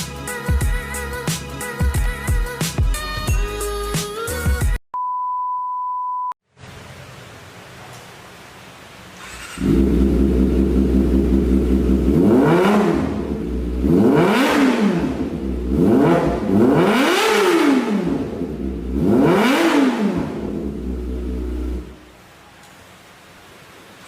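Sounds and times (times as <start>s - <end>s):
motorcycle engine idling and revving: 9.2s - 22.0s.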